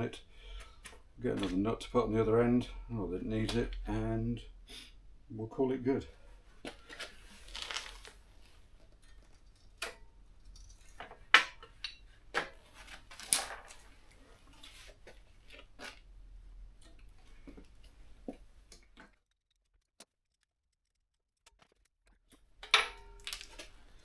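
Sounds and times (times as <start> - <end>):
metal parts and tools clinking: 22.6 - 23.7.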